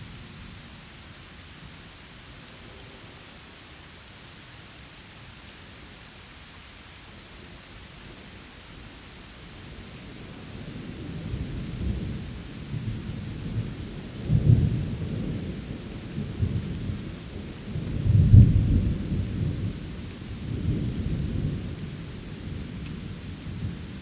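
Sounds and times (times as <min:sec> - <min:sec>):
steady rain: 0:00.0 - 0:24.0
thunder rumbling: 0:10.8 - 0:24.0.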